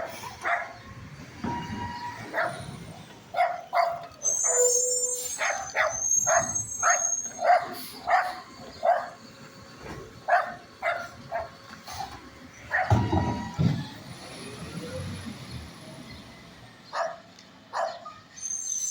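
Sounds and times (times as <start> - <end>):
dog barking: 0.0 - 0.8, 2.3 - 2.6, 3.3 - 4.7, 5.4 - 9.2, 10.3 - 11.6, 12.7 - 13.1, 16.9 - 18.2
garbage truck low rumble: 0.0 - 18.9.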